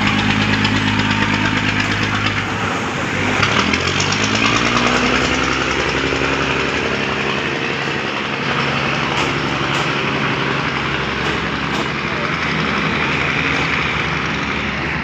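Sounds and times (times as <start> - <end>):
diesel engines running: 0.0 - 15.0
wheels rumbling on rails: 0.0 - 15.0
clicks over rail joints: 3.3 - 14.6.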